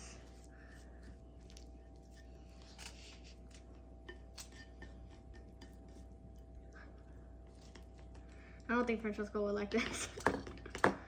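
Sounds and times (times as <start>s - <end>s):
low steady hum: 0.0s - 11.0s
chopsticks tapping a bowl: 4.0s - 6.0s.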